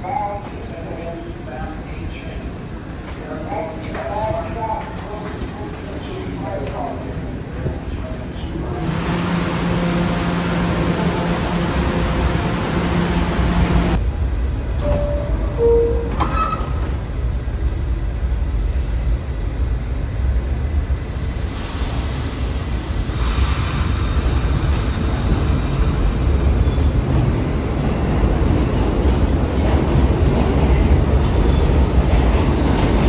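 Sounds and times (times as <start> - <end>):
subway station low rumble: 0.0 - 33.0
train wheels rushing on rails: 8.6 - 15.1, 20.8 - 33.0
thin wheel squeal: 26.7 - 27.1.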